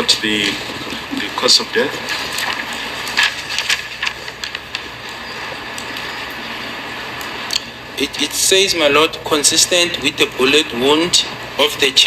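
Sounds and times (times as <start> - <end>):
pages rustling and turning: 0.0 - 6.1
steady hiss: 0.0 - 12.0.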